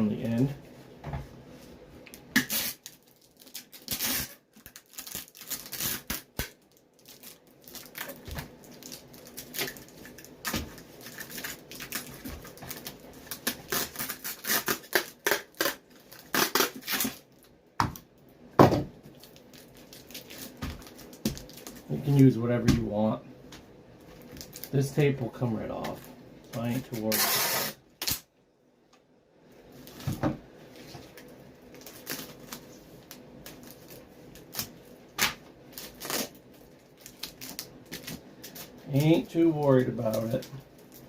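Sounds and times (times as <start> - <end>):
adhesive tape pulled and torn: 2.4 - 6.6, 13.3 - 17.2, 27.0 - 28.3, 35.8 - 36.4.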